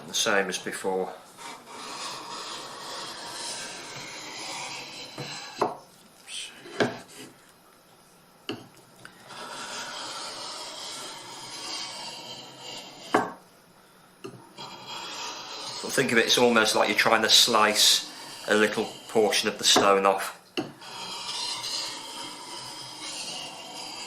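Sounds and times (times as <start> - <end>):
blade scraping on sharpening stone: 1.4 - 5.7, 9.3 - 13.3, 14.6 - 19.9, 20.8 - 24.0.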